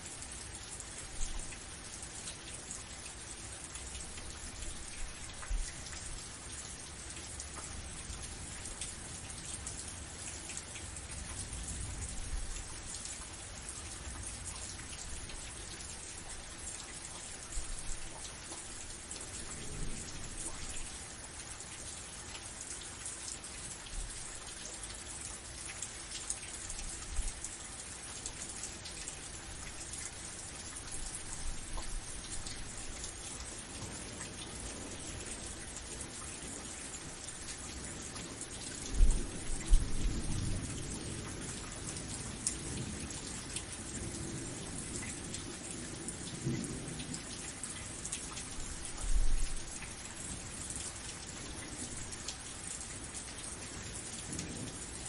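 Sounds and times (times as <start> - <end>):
rain drops ticking: 0.0 - 55.0.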